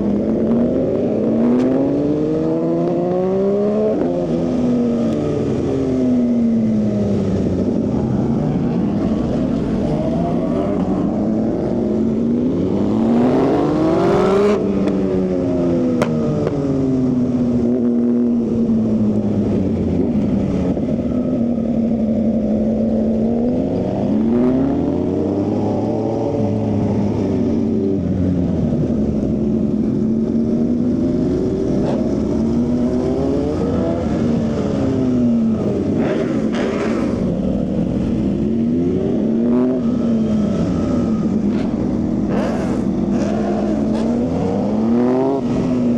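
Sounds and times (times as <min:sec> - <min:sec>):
motorcycle engine revving: 0:28.7 - 0:45.9.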